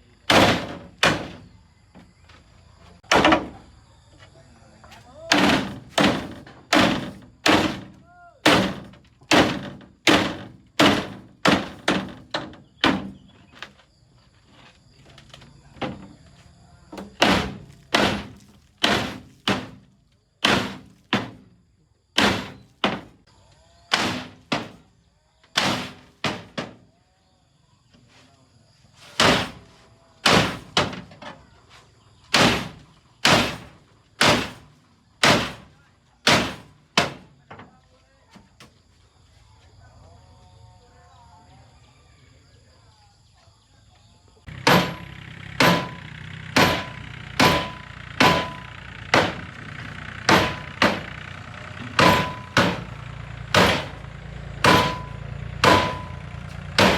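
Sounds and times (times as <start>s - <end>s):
hammer blows on metal: 44.5s - 49.5s, 51.9s - 54.0s, 54.6s - 56.9s.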